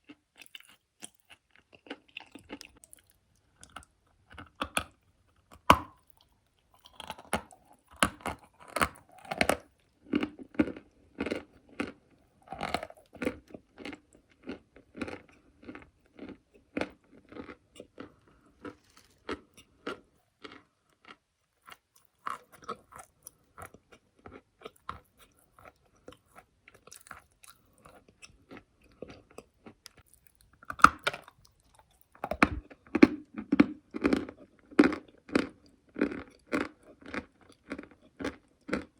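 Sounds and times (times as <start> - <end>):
chewing crunchy clay: 0.0 - 38.9.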